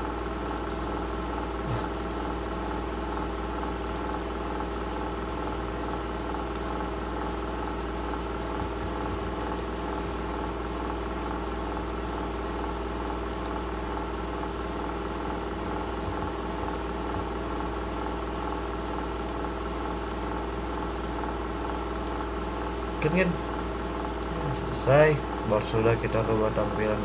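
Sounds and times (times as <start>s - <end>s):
steady machine hum: 0.0s - 27.0s
faint clicks: 3.8s - 4.0s, 13.3s - 13.6s, 21.9s - 22.2s.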